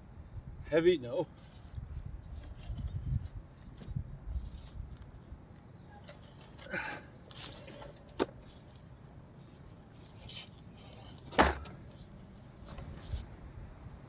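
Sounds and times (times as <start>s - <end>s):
dull thump: 11.3s - 11.8s.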